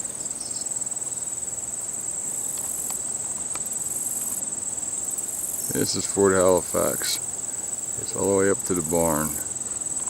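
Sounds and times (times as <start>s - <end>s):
insects trilling: 0.0s - 10.0s
low background noise: 0.0s - 10.0s.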